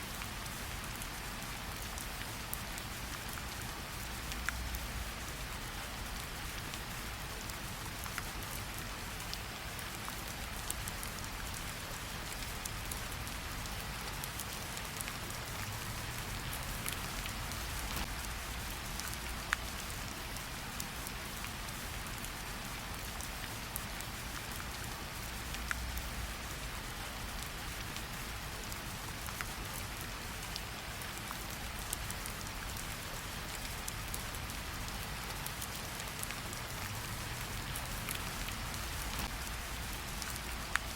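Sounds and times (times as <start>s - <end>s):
raindrop ticks: 7.2s - 40.9s
rain hissing: 12.0s - 23.6s, 31.6s - 40.9s.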